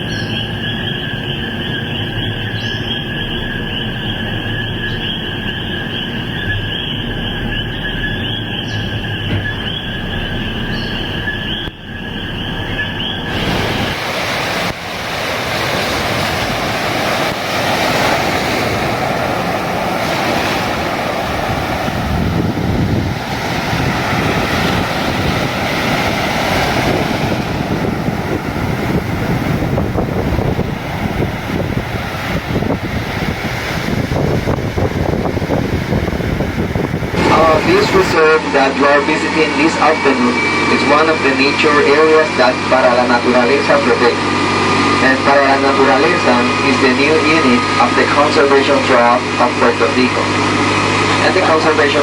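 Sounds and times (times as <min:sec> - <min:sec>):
wind buffeting microphone: 0:00.0 - 0:38.4
surf washing ashore: 0:08.7 - 0:52.0.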